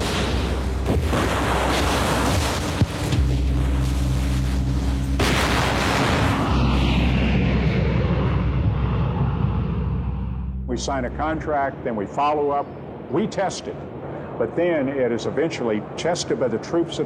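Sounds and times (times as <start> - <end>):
sharp crack: 0.0 - 11.4
rumbling bomb explosions: 0.0 - 11.9
low steady drone: 0.0 - 16.6.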